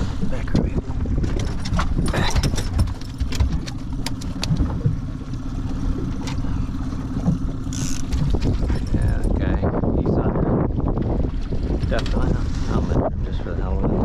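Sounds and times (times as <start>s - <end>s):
boat motor running: 0.0s - 14.0s
light clicks and knocks: 0.5s - 5.4s.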